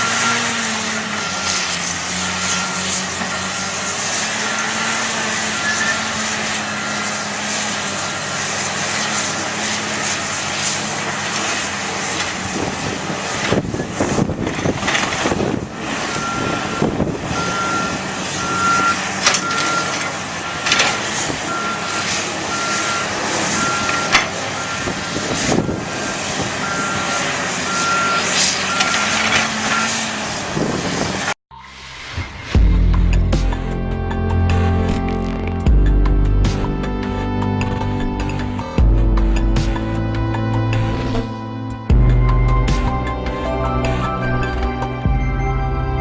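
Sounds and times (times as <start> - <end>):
diesel machinery running: 0.0 - 46.0
backup alarm beeping: 16.1 - 20.7, 21.5 - 30.0.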